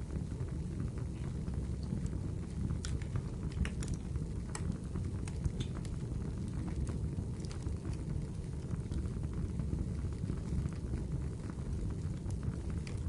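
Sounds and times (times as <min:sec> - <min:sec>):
low rumble of flames: 0:00.0 - 0:13.0
firewood popping and snapping: 0:01.8 - 0:09.0, 0:12.2 - 0:13.0.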